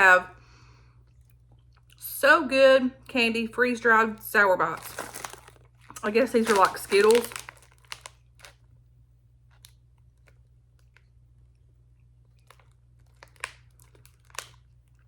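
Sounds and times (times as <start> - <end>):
plastic candy pack crinkling: 3.5 - 8.8, 9.4 - 11.5, 12.2 - 15.0.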